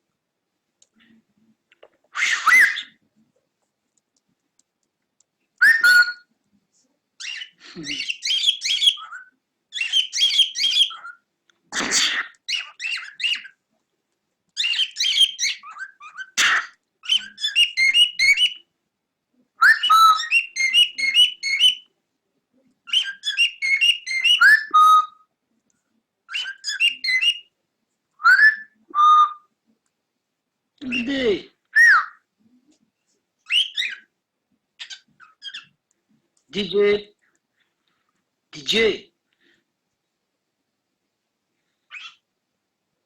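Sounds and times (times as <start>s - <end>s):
cockatiel whistling and chirping: 2.2s - 3.0s, 5.6s - 6.2s, 7.2s - 11.2s, 12.5s - 13.5s, 14.6s - 18.6s, 19.6s - 21.9s, 22.9s - 25.2s, 26.3s - 27.5s, 28.2s - 29.5s, 31.8s - 32.2s, 33.4s - 34.1s, 34.8s - 35.7s, 41.9s - 42.2s.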